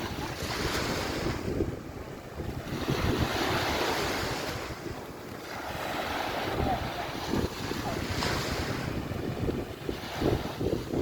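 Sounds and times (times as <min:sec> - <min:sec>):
surf washing on beach: 0:00.0 - 0:11.0
wind buffeting microphone: 0:00.0 - 0:11.0.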